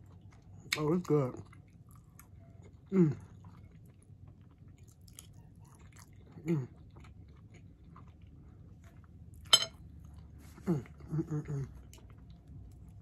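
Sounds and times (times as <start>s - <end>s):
close chewing: 0.0s - 9.4s.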